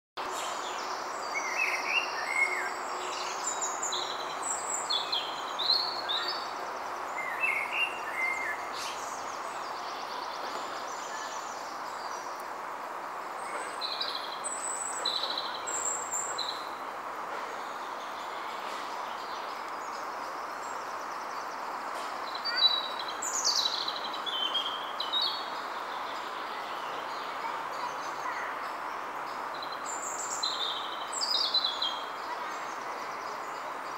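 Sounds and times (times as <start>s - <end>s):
songbirds chirping and trilling: 0.2s - 33.9s.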